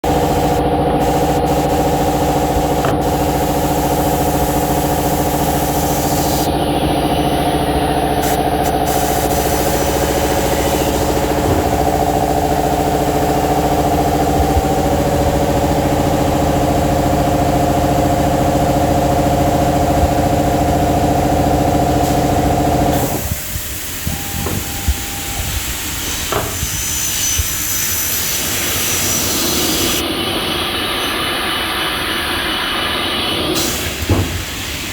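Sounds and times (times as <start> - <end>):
cutting machine humming: 0.1 - 14.7.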